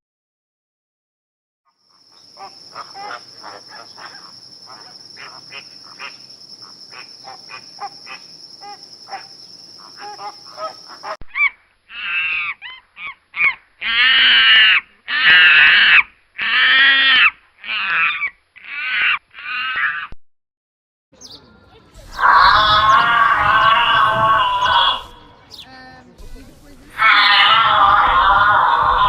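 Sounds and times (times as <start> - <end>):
high insect trill: 1.7 - 11.2, 22.0 - 29.0
small scattered calls: 1.7 - 20.1, 21.2 - 29.0
large bird calling loudly: 1.9 - 20.1, 22.0 - 25.8, 26.9 - 29.0.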